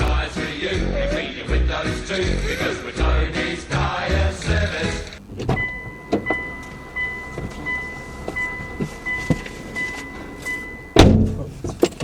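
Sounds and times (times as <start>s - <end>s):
car warning chime beeping: 4.3s - 12.0s
loud thump: 10.9s - 11.8s.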